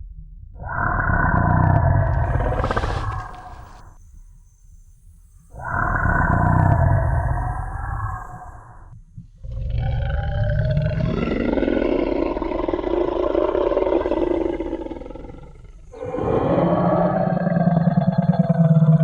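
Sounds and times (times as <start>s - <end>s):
dinosaur roar: 0.6s - 3.9s, 9.4s - 19.0s.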